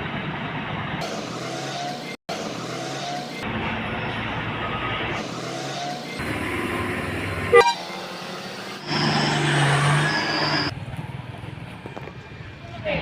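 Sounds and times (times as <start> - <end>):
road traffic with trucks: 0.0 - 13.0
sharp horn toot: 7.5 - 8.2.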